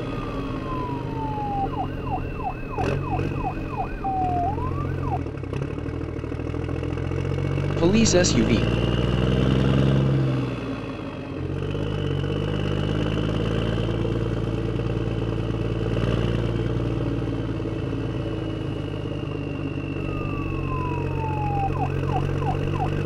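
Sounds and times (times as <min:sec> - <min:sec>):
car engine running: 0:00.0 - 0:05.4.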